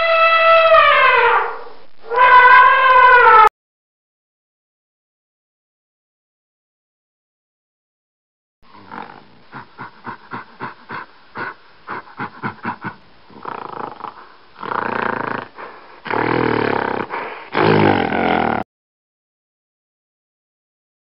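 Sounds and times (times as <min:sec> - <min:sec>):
gorilla grunting and calling: 0:08.7 - 0:18.6.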